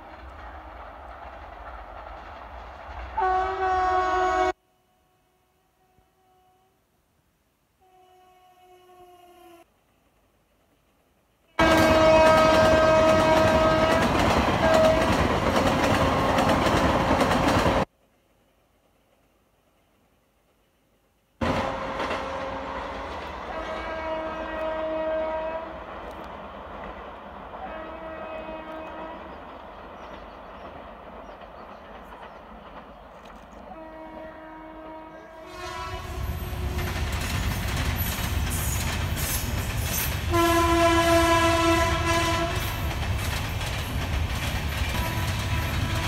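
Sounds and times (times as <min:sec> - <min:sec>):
train passing with wheel clatter: 0:00.0 - 0:04.6, 0:09.6 - 0:46.0
locomotive horn blasts: 0:03.2 - 0:06.8, 0:07.8 - 0:09.6, 0:11.6 - 0:15.4, 0:21.4 - 0:25.8, 0:27.6 - 0:29.3, 0:33.7 - 0:37.0, 0:40.3 - 0:42.8, 0:45.0 - 0:46.0.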